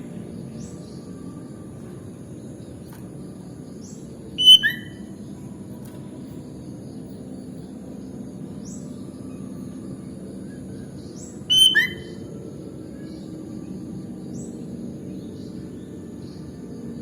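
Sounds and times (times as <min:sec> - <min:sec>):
low background hum: 0:00.0 - 0:17.0
high rising bird chirps: 0:03.8 - 0:05.2, 0:10.8 - 0:12.5
bird two-note whistled call: 0:04.4 - 0:05.0, 0:11.5 - 0:12.2.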